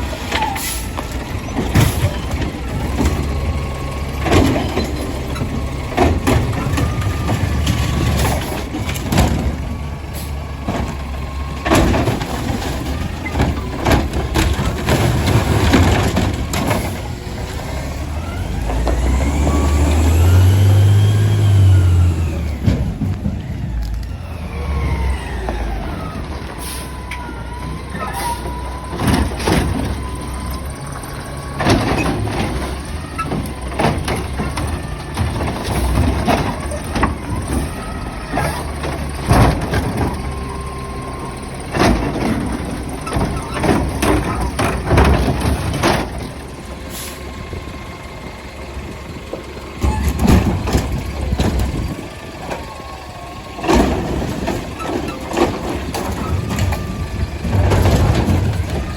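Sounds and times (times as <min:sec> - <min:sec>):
garbage truck engine running: 0:00.0 - 0:58.9
bin banging against truck: 0:49.8 - 0:52.0.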